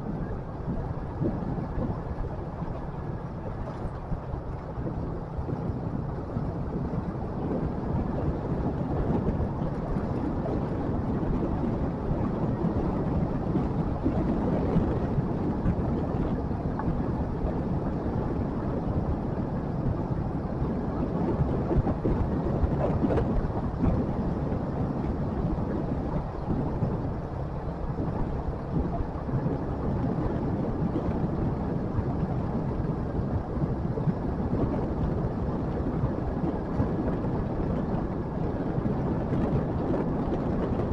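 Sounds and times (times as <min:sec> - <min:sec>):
wind and road noise: 0:00.0 - 0:40.9.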